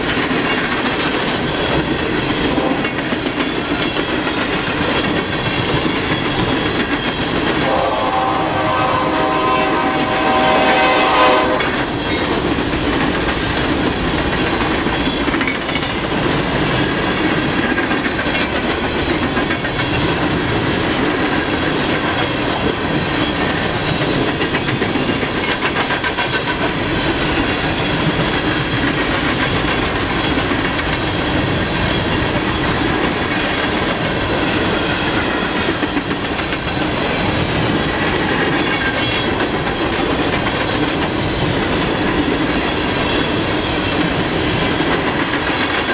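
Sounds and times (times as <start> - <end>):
wheels clacking over rail joints: 0.0 - 8.3, 11.6 - 45.9
freight train cars rumbling: 0.0 - 45.9
locomotive horn blast: 7.6 - 11.8.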